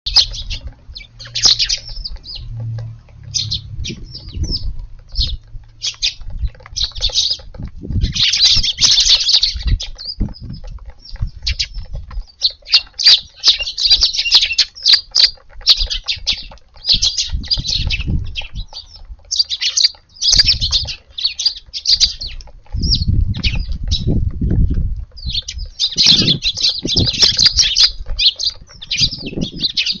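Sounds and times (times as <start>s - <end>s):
sparrows chirping and chattering: 0.0s - 30.0s
low thumps and rumbles: 0.1s - 12.3s, 15.7s - 19.2s, 21.9s - 30.0s.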